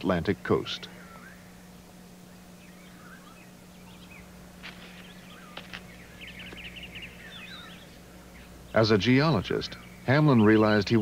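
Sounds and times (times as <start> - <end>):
faint low hum: 0.0 - 11.0
birds chirping and whistling: 0.7 - 11.0.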